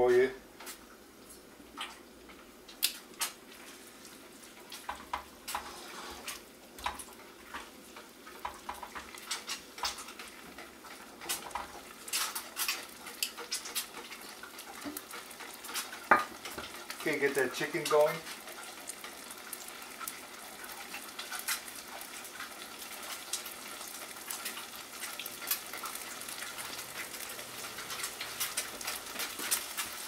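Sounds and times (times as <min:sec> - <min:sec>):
chicken sizzling in a frying pan: 0:00.0 - 0:30.0
tongs clicking and scraping: 0:04.7 - 0:17.1, 0:24.3 - 0:30.0.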